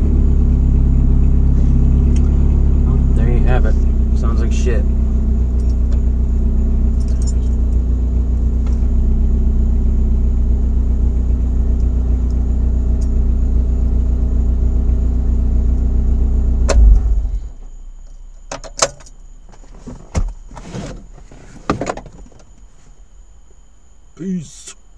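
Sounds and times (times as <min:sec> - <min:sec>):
engine shutting off with thump: 0:00.0 - 0:23.0
engine running inside cab: 0:00.0 - 0:24.0
keys jangling and clicking: 0:07.0 - 0:07.6.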